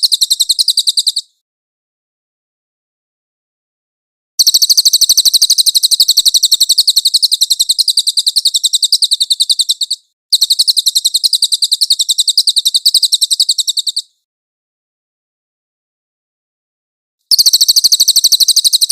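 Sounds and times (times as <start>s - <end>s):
songbird high rolling trill: 0.0s - 1.3s, 4.4s - 14.1s, 17.3s - 18.9s.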